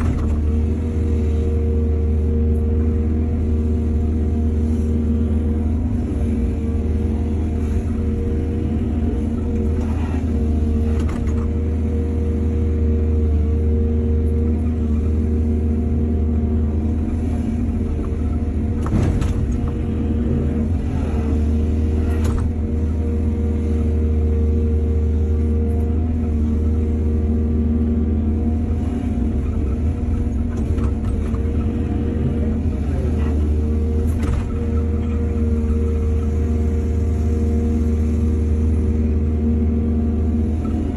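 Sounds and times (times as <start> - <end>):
excavator diesel engine droning: 0.0 - 40.9.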